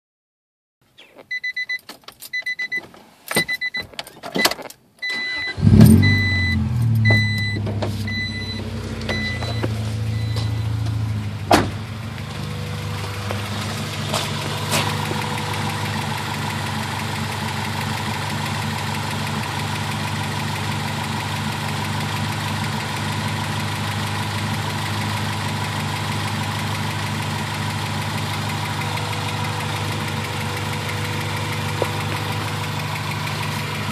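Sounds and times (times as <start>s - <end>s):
dashboard warning chime beeping: 1.0s - 11.3s
car engine cranking and starting: 3.2s - 33.9s
car engine idling: 5.2s - 33.9s.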